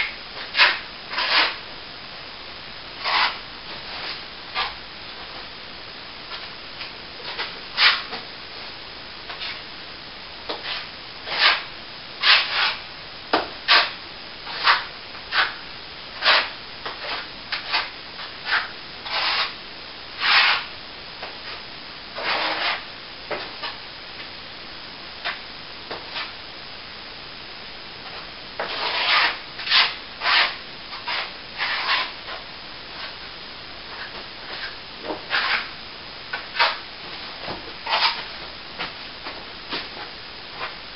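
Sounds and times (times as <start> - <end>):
hand tool scraping plaster: 0.4 - 1.6, 3.0 - 4.8, 7.3 - 8.1, 10.5 - 12.8, 13.7 - 15.6, 16.2 - 19.6, 20.2 - 20.7, 22.2 - 22.8, 28.6 - 32.4, 33.9 - 35.7, 36.3 - 36.8, 37.8 - 38.3.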